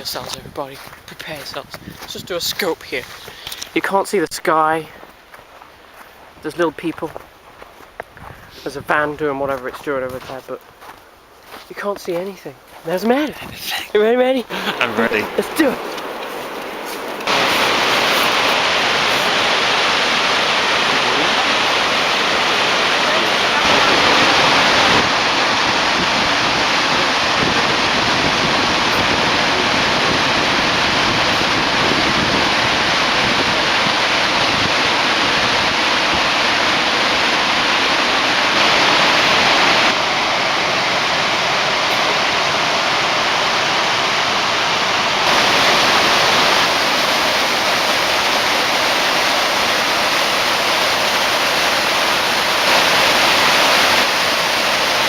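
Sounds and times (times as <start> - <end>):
waterfall roaring: 0.0 - 1.4, 12.8 - 55.0.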